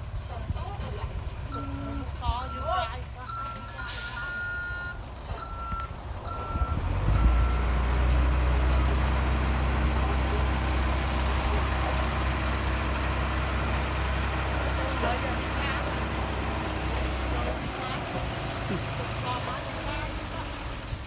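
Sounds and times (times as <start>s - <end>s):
heavy machine diesel engine: 0.0s - 21.0s
reversing alarm beeps: 1.5s - 7.7s.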